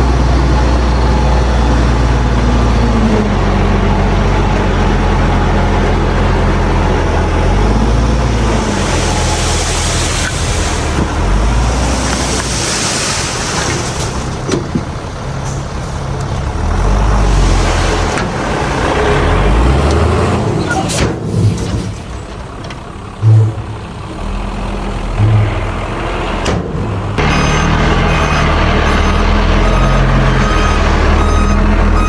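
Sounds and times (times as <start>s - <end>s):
heavy diesel engines: 0.0s - 32.0s.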